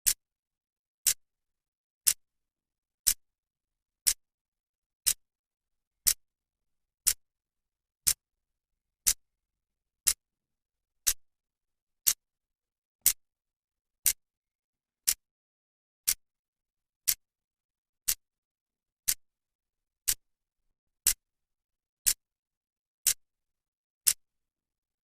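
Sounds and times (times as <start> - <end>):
clock ticking: 15.0 - 15.2, 19.0 - 19.2, 20.0 - 20.2.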